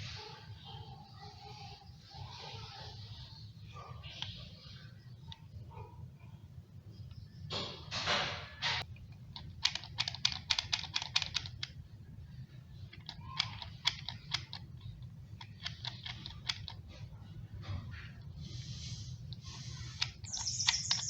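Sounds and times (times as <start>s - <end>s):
steady low hum: 0.0s - 21.0s
sharp plastic clicks and taps: 8.8s - 11.8s, 12.9s - 16.8s.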